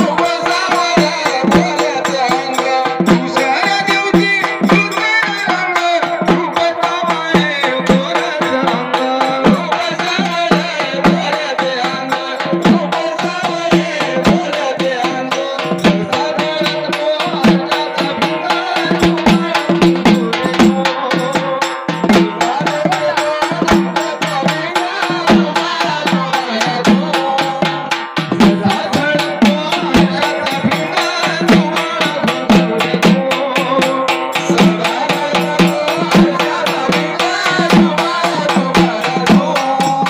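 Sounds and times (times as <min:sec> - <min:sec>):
fast hand drum beat: 0:00.0 - 0:40.0
man singing: 0:00.0 - 0:40.0
rattling percussion: 0:00.0 - 0:40.0.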